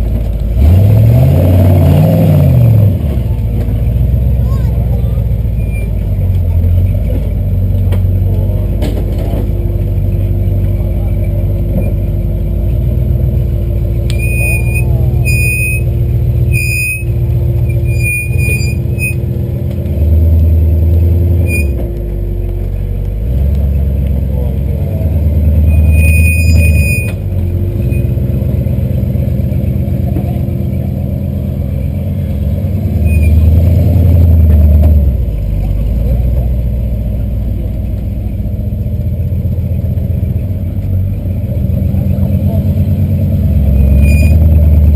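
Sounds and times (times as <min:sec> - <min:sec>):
engine revving under load: 0:00.0 - 0:44.9
short high squeaks: 0:05.6 - 0:06.0, 0:14.1 - 0:15.9, 0:16.5 - 0:19.2, 0:21.4 - 0:21.8, 0:25.6 - 0:27.2, 0:33.0 - 0:33.5, 0:43.8 - 0:44.5.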